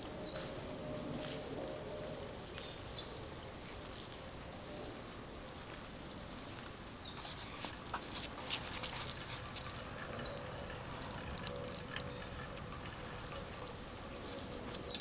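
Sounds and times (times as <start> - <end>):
raindrops ticking: 9.0 - 15.0.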